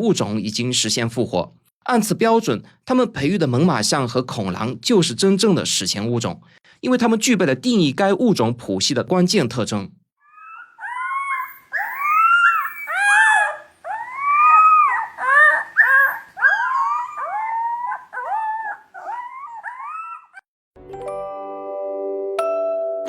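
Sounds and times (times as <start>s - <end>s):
wolf pups howling: 10.2s - 20.4s
wolf pups yipping: 10.2s - 20.5s.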